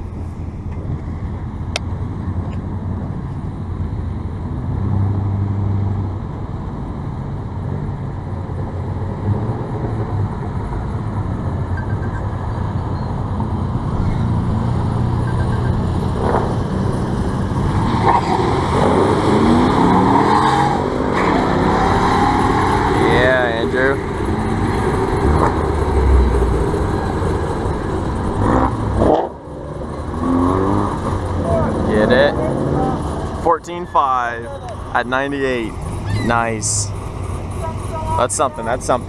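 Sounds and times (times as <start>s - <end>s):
truck engines revving: 0.0s - 39.0s.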